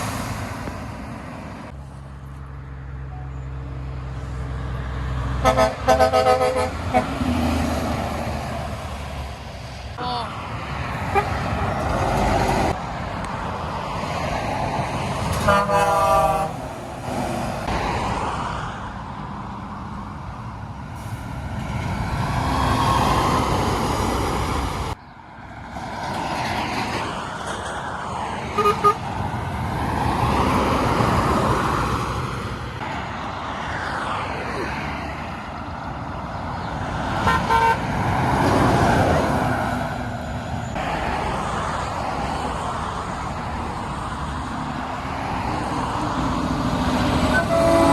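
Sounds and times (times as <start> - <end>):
heavy trucks passing: 0.0 - 47.9
truck horn: 5.4 - 7.5, 11.0 - 11.8, 15.4 - 16.8, 28.6 - 29.1, 37.2 - 37.9, 47.1 - 47.9.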